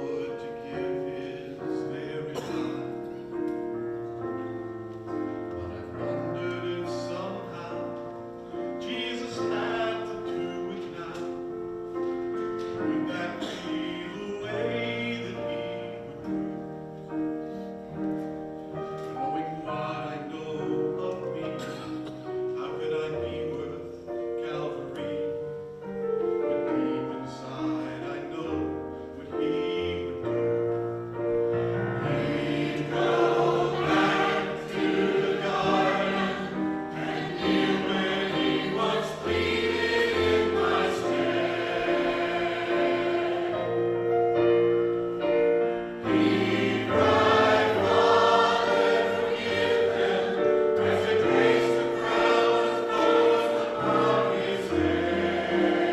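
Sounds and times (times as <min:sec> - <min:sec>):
choir singing gospel: 0:00.0 - 0:03.6, 0:04.6 - 0:11.6, 0:12.2 - 0:16.6, 0:26.6 - 0:55.9.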